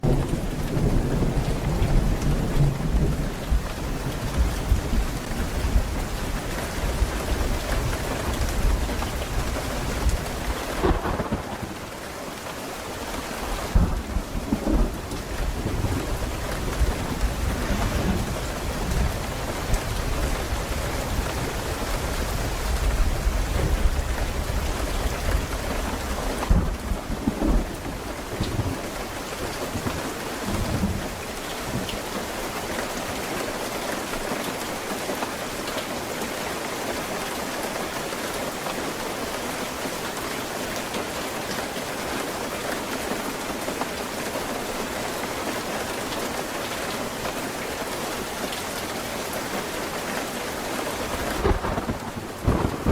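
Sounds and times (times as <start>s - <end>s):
rolling thunder: 0.0s - 12.1s, 13.6s - 31.9s, 51.0s - 52.9s
steady rain falling: 0.0s - 52.9s
sharp thunder crack: 10.8s - 12.0s, 13.7s - 19.0s, 26.4s - 29.0s, 51.3s - 52.9s.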